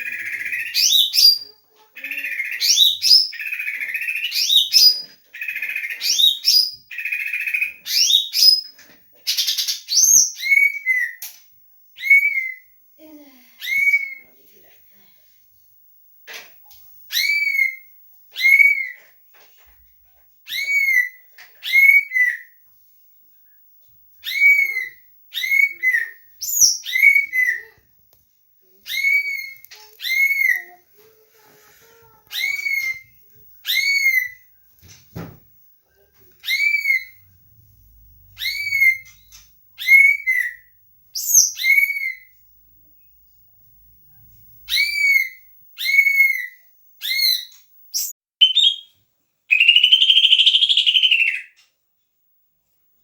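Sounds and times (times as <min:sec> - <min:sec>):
bird whistled call: 0:44.7 - 0:48.9, 0:49.5 - 0:51.6.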